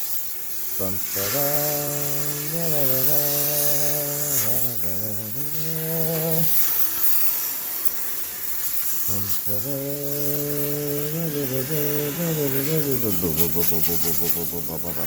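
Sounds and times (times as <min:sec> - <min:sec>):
steam jet hissing: 0:00.0 - 0:15.0
man humming: 0:00.8 - 0:06.7, 0:09.1 - 0:15.0.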